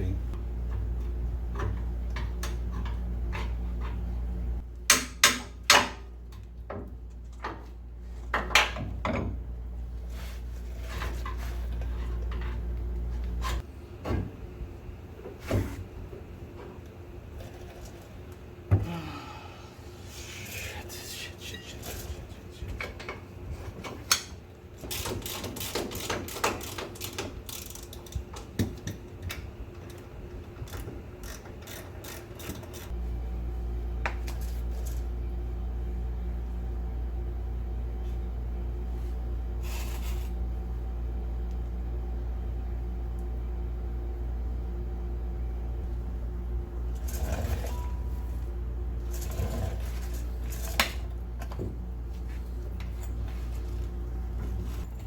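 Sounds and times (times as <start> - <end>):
steady low hum: 0.0 - 24.9, 27.0 - 55.0
metal parts clicking and clanking: 23.8 - 33.0.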